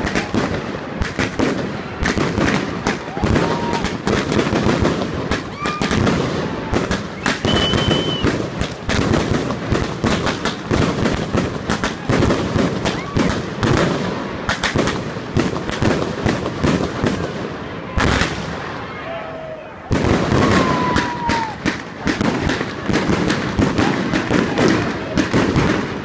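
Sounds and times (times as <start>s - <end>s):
fireworks crackling and banging: 0.0s - 26.0s
firework whistles: 2.5s - 4.5s, 5.3s - 8.9s, 12.6s - 13.6s, 20.2s - 22.2s.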